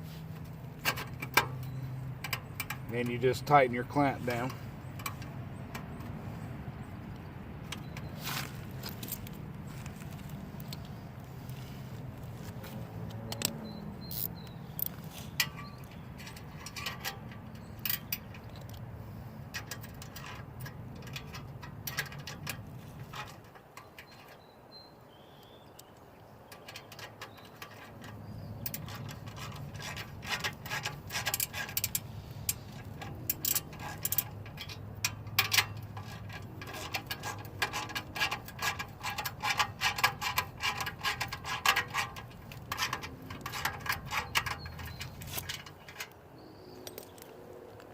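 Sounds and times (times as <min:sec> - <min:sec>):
hand wrench clicking: 0:13.3 - 0:18.8, 0:26.5 - 0:46.2
metal clinking: 0:13.3 - 0:18.8, 0:26.5 - 0:47.2.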